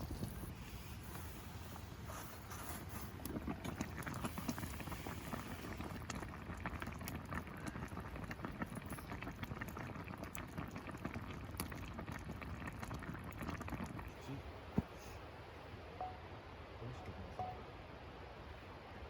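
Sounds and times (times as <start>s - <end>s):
campfire pops and crackles: 0.0s - 15.0s
pot of food bubbling: 0.0s - 15.0s.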